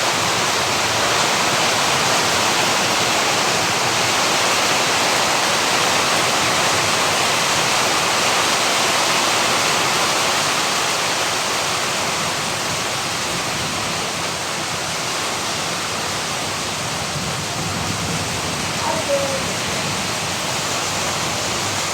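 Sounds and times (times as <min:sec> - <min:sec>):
heavy rain pouring: 0:00.0 - 0:21.9
strong stormy wind: 0:11.3 - 0:21.9.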